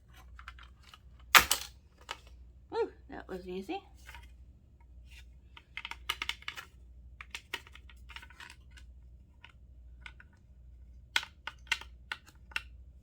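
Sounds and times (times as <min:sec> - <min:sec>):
plastic housing clicking and rattling: 0:00.1 - 0:02.3, 0:05.5 - 0:10.4, 0:11.1 - 0:12.8.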